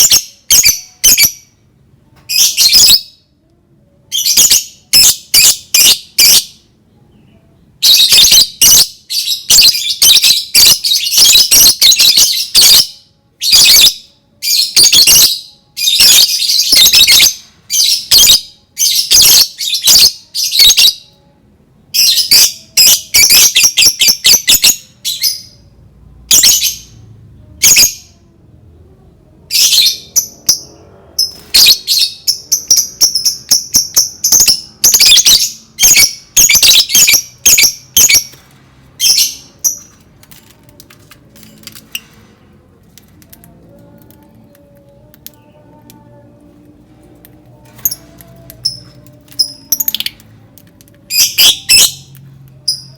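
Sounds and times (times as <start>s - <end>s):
lovebird chattering and trilling: 47.8s - 50.2s.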